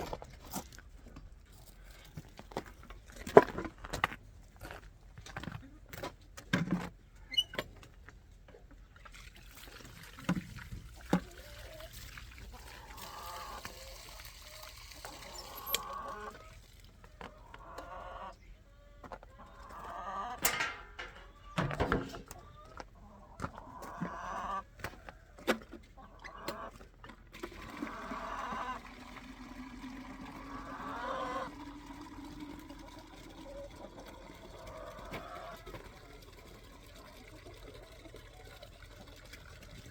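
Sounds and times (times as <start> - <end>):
chickens clucking: 11.2 - 39.1.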